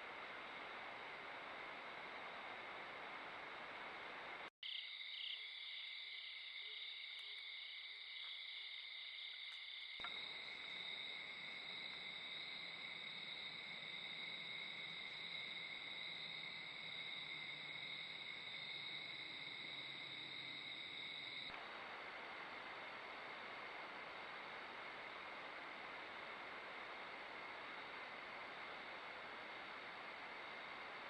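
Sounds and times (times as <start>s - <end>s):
crickets and katydids trilling: 4.6s - 21.5s.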